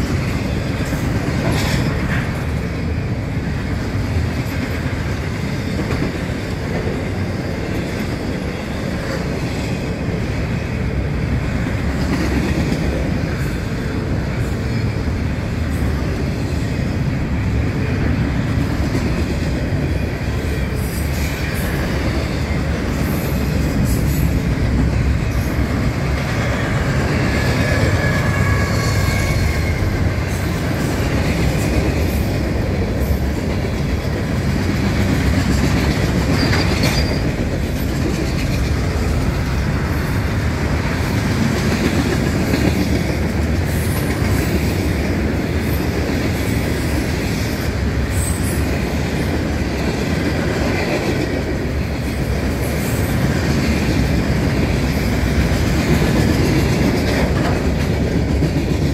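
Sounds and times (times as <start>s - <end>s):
freight train cars rolling: 0.0s - 58.9s
wheels clicking over rail joints: 28.9s - 46.5s.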